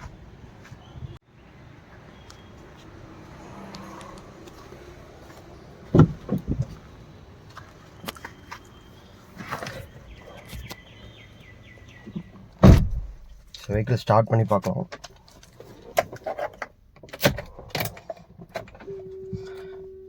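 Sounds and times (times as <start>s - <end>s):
footsteps: 1.8s - 8.7s
car door shutting: 5.8s - 6.8s, 12.1s - 13.4s.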